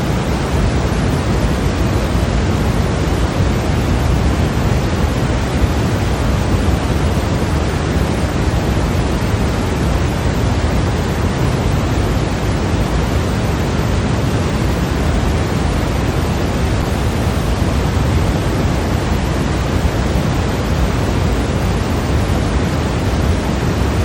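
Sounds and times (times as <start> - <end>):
white noise hiss: 0.0 - 24.0.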